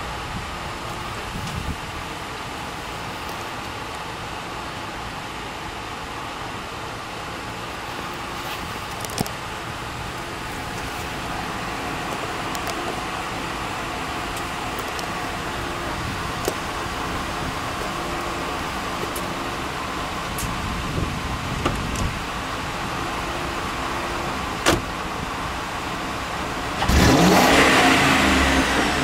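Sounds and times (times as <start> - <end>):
car engine idling: 0.0 - 29.0
car door shutting: 21.5 - 22.2, 24.6 - 25.0.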